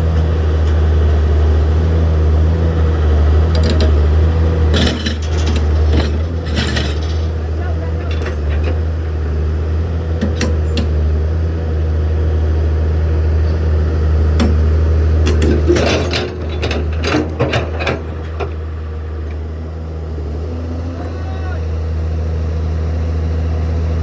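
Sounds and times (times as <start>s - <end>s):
heavy machinery engine drone: 0.0s - 24.0s
sharp metallic knocks and clanks: 4.7s - 9.1s, 14.3s - 18.6s.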